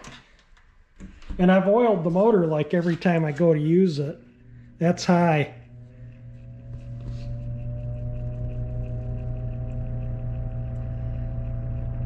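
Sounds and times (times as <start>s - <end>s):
box fan motor whining: 1.9s - 12.0s.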